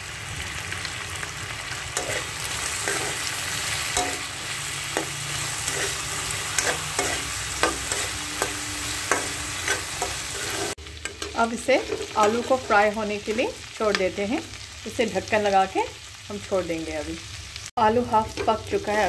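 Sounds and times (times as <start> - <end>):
potatoes sizzling in oil: 0.0 - 19.0
metal spoon scraping a pan: 1.7 - 14.6, 18.2 - 19.0.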